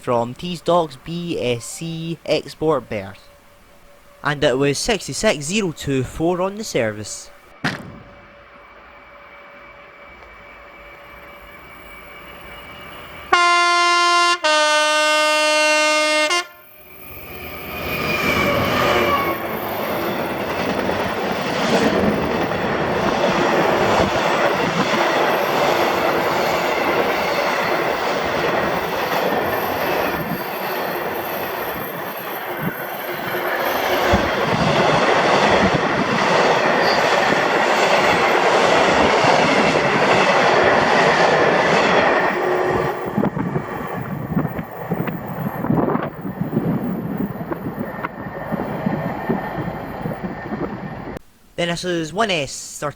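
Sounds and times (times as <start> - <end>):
train running past: 0.0 - 51.2
locomotive two-tone horn: 13.2 - 16.8.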